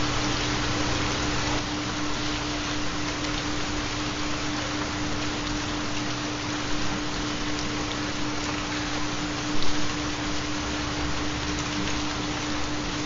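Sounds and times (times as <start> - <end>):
steady rainfall: 0.0 - 13.0.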